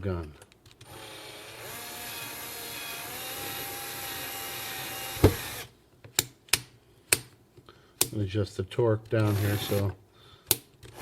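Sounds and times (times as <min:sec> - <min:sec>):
cordless drill driving screw: 0:00.8 - 0:05.7, 0:09.2 - 0:09.9
drill click: 0:00.8 - 0:05.7, 0:09.2 - 0:10.0.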